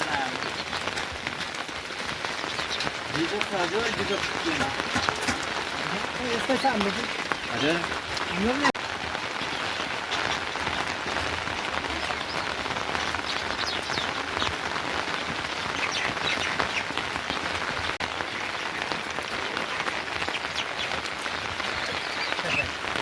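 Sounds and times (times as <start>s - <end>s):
steady rain hiss: 0.0s - 23.0s.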